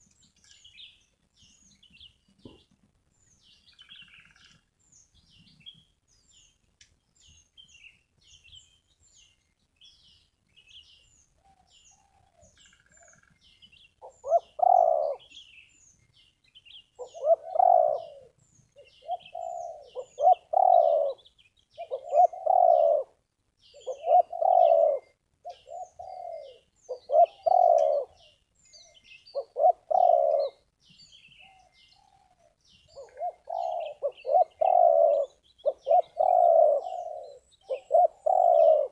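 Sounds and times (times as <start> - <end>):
small birds chirping: 0.0 - 38.9
dove cooing: 14.0 - 15.4, 17.0 - 30.7, 31.4 - 38.9.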